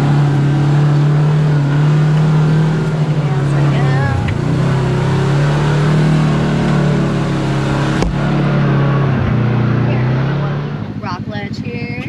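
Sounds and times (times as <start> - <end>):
vehicle engine running: 0.0 - 12.0
sharp knock from vehicle: 8.0 - 8.2.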